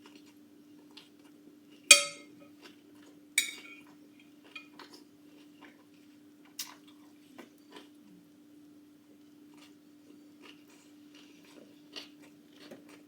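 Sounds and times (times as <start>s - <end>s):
cutlery clinking against dish: 1.9s - 2.4s, 3.4s - 3.8s, 4.5s - 4.7s.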